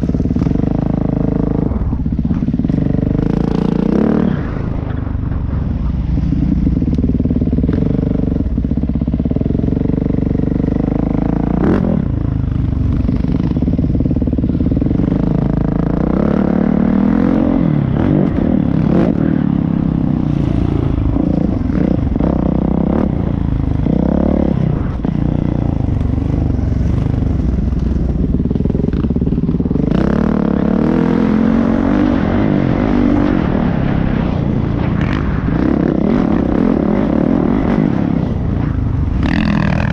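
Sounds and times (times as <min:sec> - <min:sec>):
dirt bike engine revving: 0:12.8 - 0:39.9.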